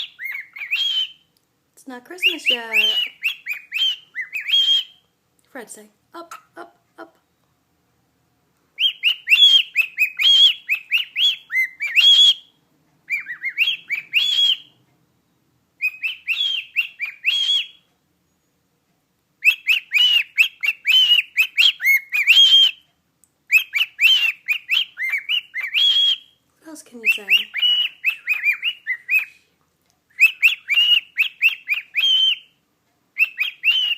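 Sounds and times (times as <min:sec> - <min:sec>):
cockatiel whistling: 0:00.0 - 0:01.3, 0:02.2 - 0:05.0, 0:08.8 - 0:14.8, 0:15.8 - 0:18.4, 0:19.4 - 0:22.9, 0:23.5 - 0:26.4, 0:27.0 - 0:29.5, 0:30.2 - 0:32.6, 0:33.2 - 0:33.9.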